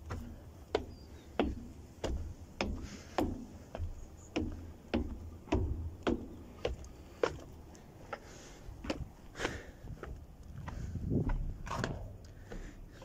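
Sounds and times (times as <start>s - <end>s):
clicking footsteps: 0.0s - 13.0s.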